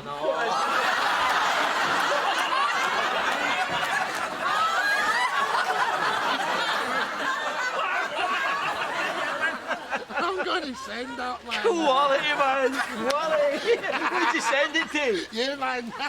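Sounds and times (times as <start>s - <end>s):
people laughing hard: 0.0s - 16.0s.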